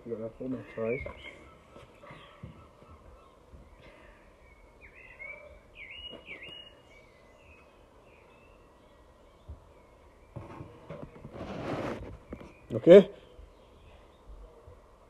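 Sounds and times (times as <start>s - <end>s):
faint outdoor hiss: 0.0s - 15.0s
small bird chirping: 0.1s - 14.4s.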